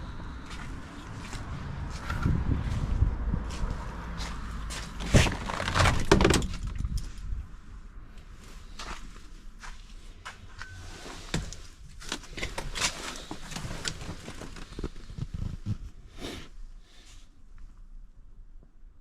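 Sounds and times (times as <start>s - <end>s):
clicks and knocks in van cab: 5.0s - 7.0s.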